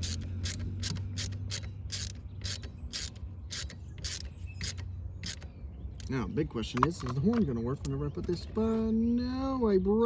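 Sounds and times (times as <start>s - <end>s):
hand ratchet clicking: 0.0s - 5.4s.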